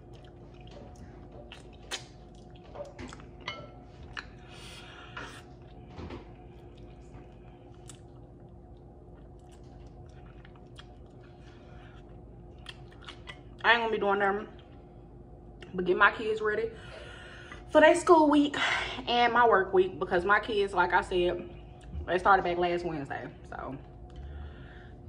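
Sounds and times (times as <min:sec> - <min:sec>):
close chewing of chicken wings: 0:00.0 - 0:03.4, 0:06.6 - 0:13.6
wet mouth clicks and smacks: 0:01.5 - 0:03.2, 0:12.6 - 0:13.5.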